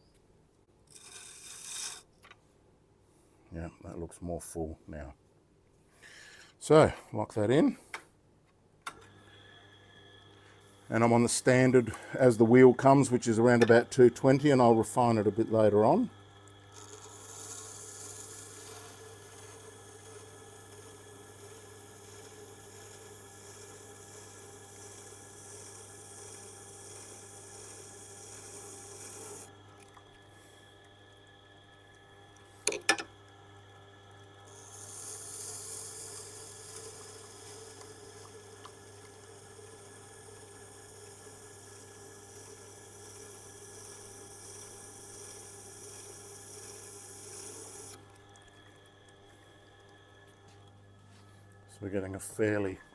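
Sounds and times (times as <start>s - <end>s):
steel tool scraping on grinding stone: 0.9s - 2.1s, 16.7s - 29.5s, 34.5s - 48.0s
grinder hum: 8.9s - 52.9s.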